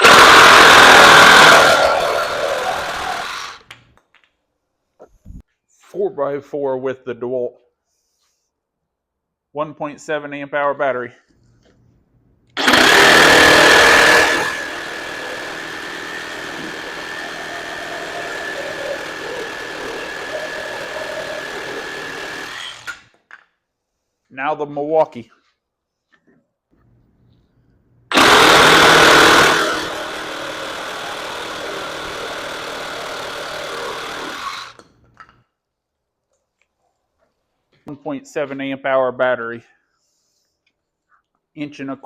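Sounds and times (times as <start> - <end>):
reciprocating saw cutting wood: 0.0 - 3.7, 12.6 - 23.1, 28.1 - 34.8.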